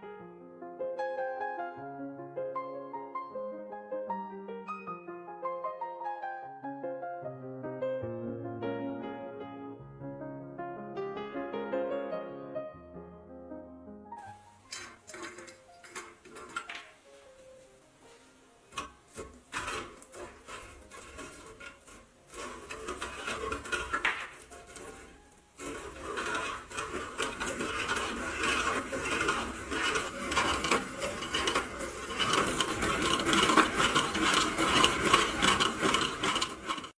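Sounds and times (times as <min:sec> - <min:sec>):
grain grinder rasping: 0:14.2 - 0:37.0.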